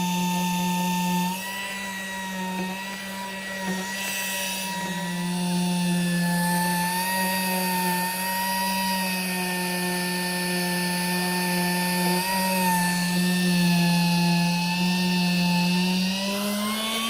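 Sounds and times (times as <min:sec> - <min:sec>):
air sanding tool whining: 0:00.0 - 0:17.0.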